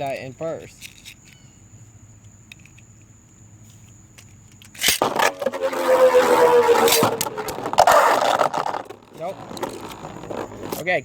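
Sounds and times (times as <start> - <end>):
spinning tops whirring: 5.0 - 9.8.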